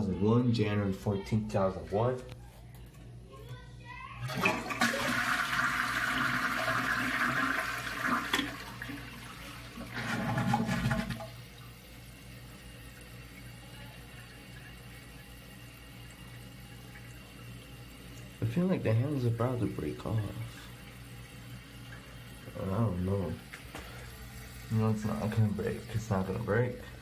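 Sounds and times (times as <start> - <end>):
toilet flushing: 4.2 - 27.0
toilet tank refilling hiss: 4.2 - 27.0.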